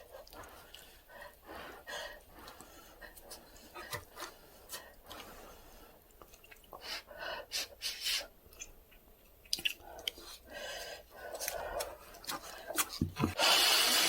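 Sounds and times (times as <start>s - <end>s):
person chewing noodles: 6.1s - 6.8s, 8.5s - 13.3s
wet smacking mouth clicks: 9.4s - 10.2s.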